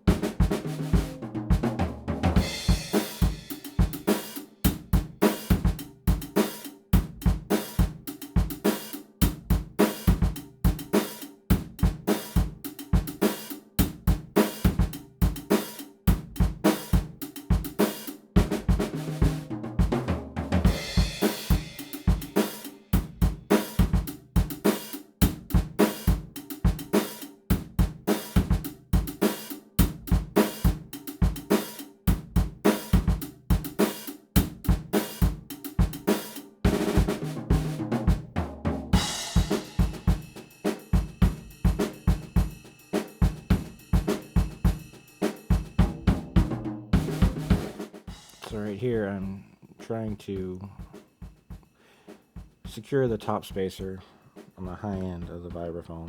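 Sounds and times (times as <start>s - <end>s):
drum-heavy background music: 0.0s - 56.0s.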